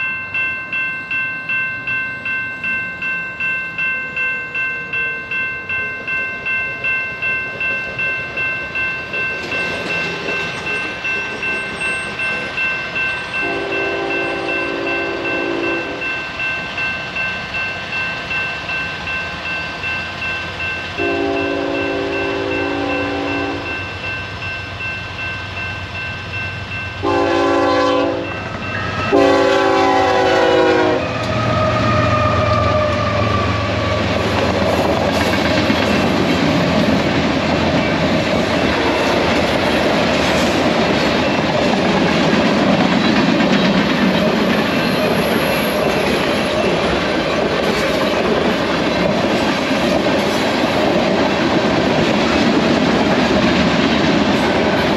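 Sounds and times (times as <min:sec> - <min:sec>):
passing train rumble: 0:00.0 - 0:54.9
locomotive air horn blasts: 0:13.4 - 0:16.0, 0:21.0 - 0:23.7, 0:27.0 - 0:28.3, 0:29.1 - 0:31.1
wheels clacking over rail joints: 0:33.7 - 0:54.9.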